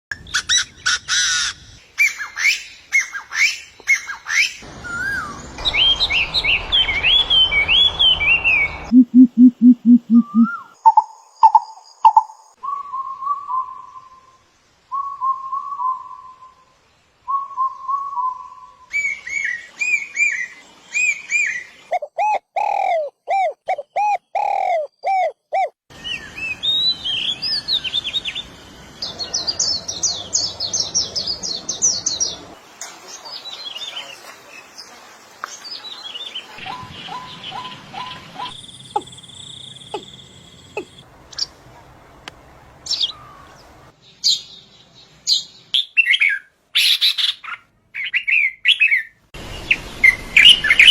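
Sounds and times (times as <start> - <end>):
songbirds chirping and whistling: 0.2 - 32.6, 35.5 - 41.5, 42.8 - 50.9.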